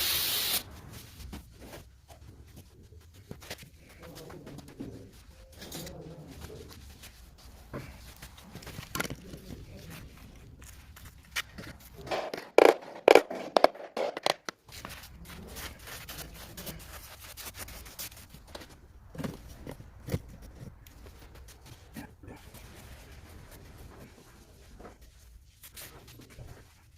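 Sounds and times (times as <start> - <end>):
hand tools scraping and knocking: 4.5 - 21.2.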